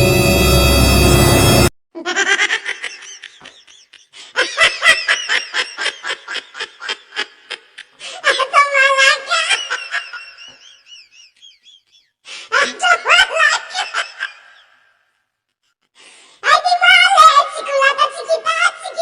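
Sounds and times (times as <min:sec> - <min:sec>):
person laughing in quick bursts: 0:02.0 - 0:08.2.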